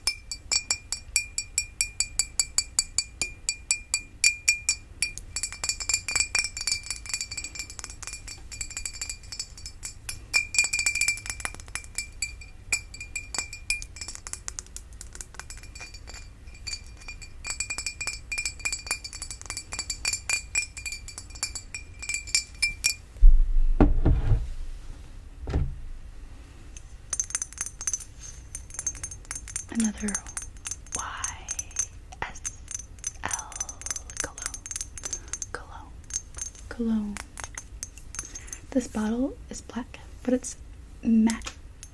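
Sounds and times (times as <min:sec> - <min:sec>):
tapping on a glass vase: 0:00.0 - 0:23.0
glass thudding when set down: 0:23.2 - 0:24.6, 0:25.4 - 0:26.0.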